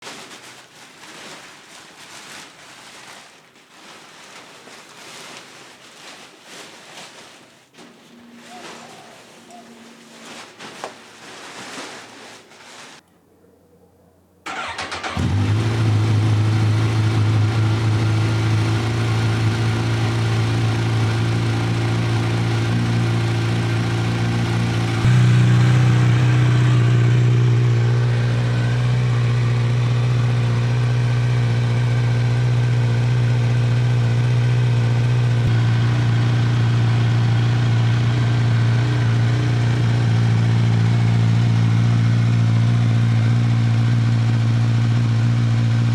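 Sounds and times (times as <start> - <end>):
motorcycle engine starting and idling: 14.5 - 45.9.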